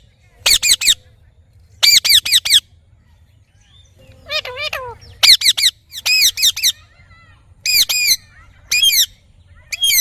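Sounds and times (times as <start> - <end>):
parrot calling: 1.8 - 2.7, 4.2 - 10.0.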